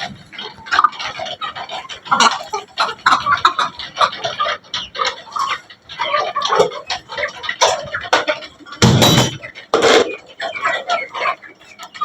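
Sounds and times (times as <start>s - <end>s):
hens and roosters clucking: 0.0s - 12.0s
thump on microphone: 8.8s - 9.4s.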